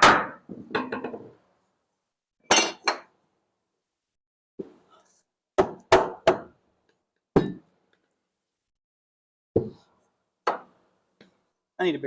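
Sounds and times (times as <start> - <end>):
hand tools knocking on wood and metal: 9.6 - 9.9, 10.5 - 10.8.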